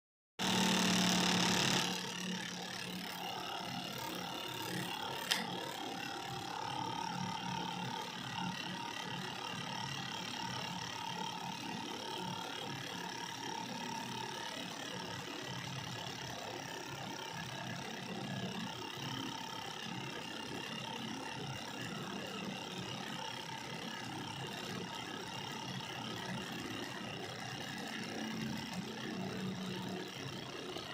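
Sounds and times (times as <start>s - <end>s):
small electric motor whirring: 0.4s - 30.9s
sharp click: 5.2s - 5.7s.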